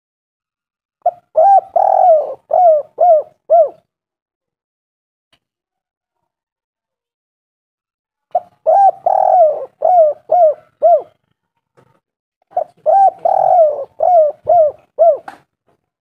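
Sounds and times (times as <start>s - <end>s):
dove cooing: 1.0s - 3.8s, 8.4s - 11.2s, 12.5s - 15.4s.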